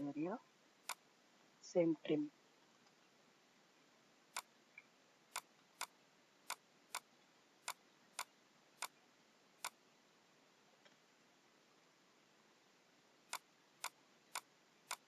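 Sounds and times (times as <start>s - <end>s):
computer mouse clicking: 0.8s - 1.0s, 4.4s - 9.0s, 9.6s - 9.8s, 13.3s - 15.0s.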